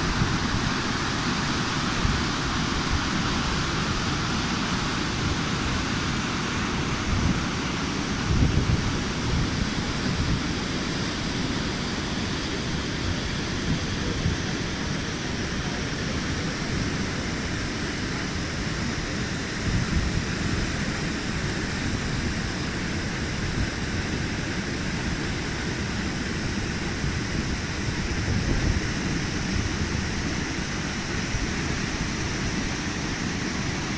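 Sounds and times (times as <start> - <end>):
wind buffeting microphone: 6.8 - 10.6, 26.7 - 32.7
waterfall rushing: 28.9 - 33.9.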